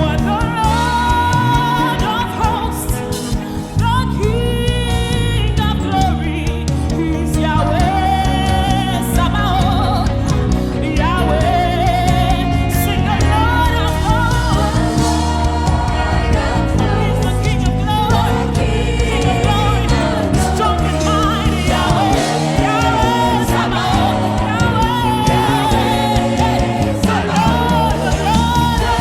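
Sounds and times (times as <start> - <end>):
band with bass and keyboards: 0.0 - 29.0
choir singing: 11.2 - 29.0.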